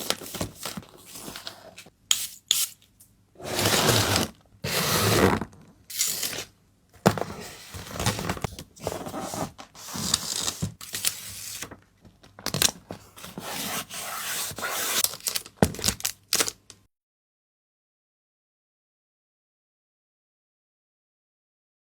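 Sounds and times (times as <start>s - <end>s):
packaging rustling and tearing: 7.5s - 13.8s, 14.5s - 16.6s.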